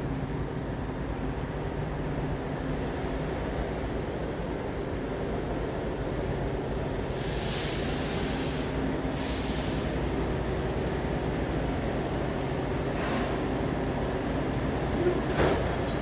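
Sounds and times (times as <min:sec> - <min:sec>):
train diesel engine drone: 0:00.0 - 0:16.0
air brakes hissing: 0:06.9 - 0:10.1, 0:12.9 - 0:13.6.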